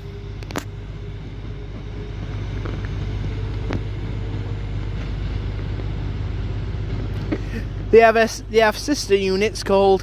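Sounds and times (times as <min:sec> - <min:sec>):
train engine hum: 0:00.0 - 0:10.0.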